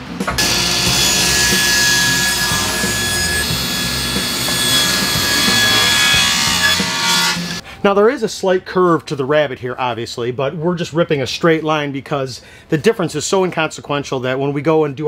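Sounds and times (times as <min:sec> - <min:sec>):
table saw cutting wood: 0:00.3 - 0:07.6.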